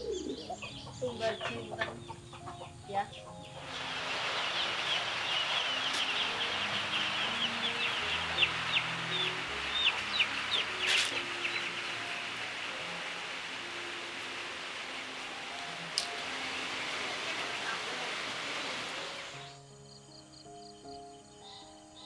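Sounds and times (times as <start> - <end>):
background hiss: 0.0 - 22.0
birds chirping: 0.0 - 22.0.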